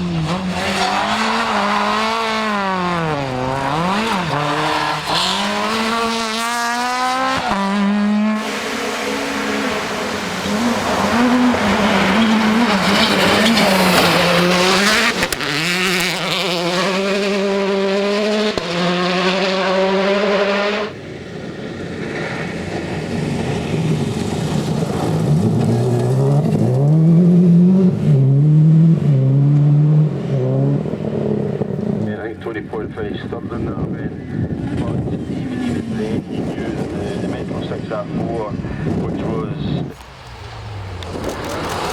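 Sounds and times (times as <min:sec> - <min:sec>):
rally car engine revving: 0:00.0 - 0:41.9
tyre and stone noise: 0:39.8 - 0:41.9.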